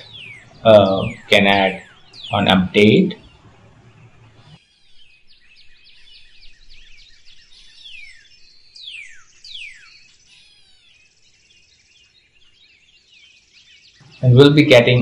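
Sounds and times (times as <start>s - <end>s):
bird chirps: 0.0s - 15.0s
long falling bird whistles: 4.6s - 12.0s.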